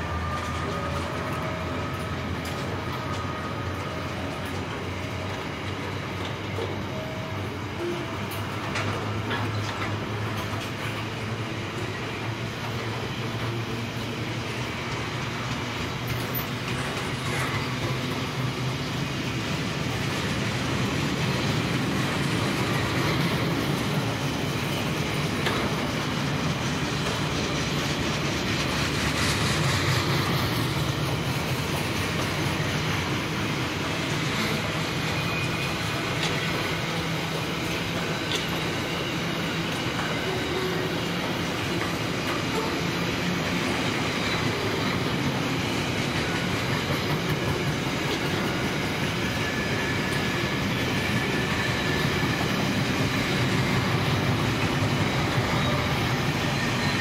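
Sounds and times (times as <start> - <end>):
train wheels rumbling on rail: 0.0 - 57.0
faint high wheel squeal: 21.4 - 57.0.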